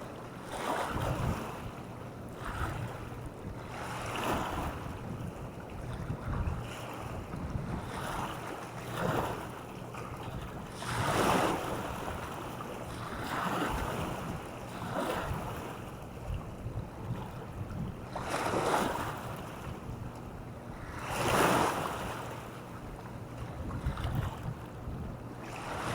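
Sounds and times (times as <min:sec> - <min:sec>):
small waves washing on shore: 0:00.0 - 0:19.9, 0:20.7 - 0:22.8, 0:23.4 - 0:25.9
wind buffeting microphone: 0:00.8 - 0:01.8, 0:02.4 - 0:08.4, 0:13.0 - 0:20.1, 0:23.3 - 0:25.9.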